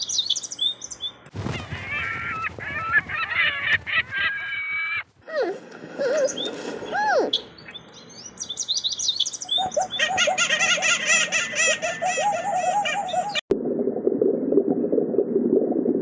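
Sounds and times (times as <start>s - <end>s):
birds chirping: 1.4s - 5.2s.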